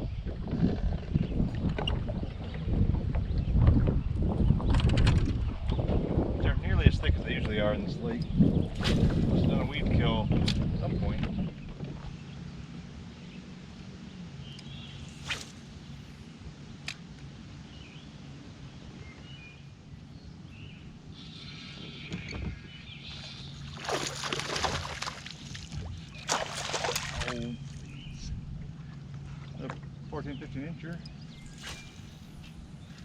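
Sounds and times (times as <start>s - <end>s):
light wind: 0.0s - 33.0s
steady low hum: 0.0s - 33.0s
fish splashing in water: 23.7s - 27.8s.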